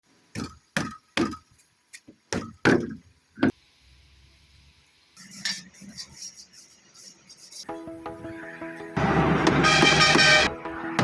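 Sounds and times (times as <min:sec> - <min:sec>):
sharp knocks: 0:09.4 - 0:10.5.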